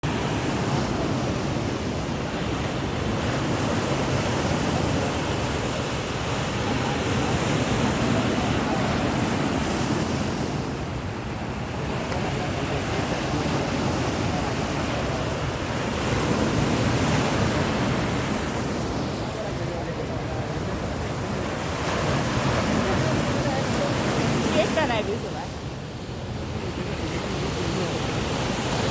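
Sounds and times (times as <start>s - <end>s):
floodwater rushing: 0.0s - 28.9s.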